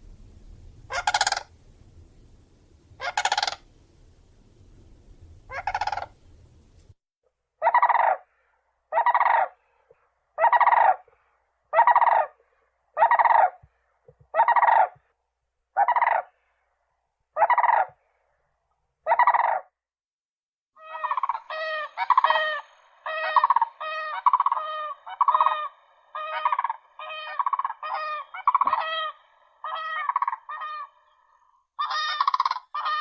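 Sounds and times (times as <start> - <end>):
crane trumpeting calls: 0.9 - 1.5, 3.0 - 3.6, 5.5 - 6.2, 20.8 - 33.0.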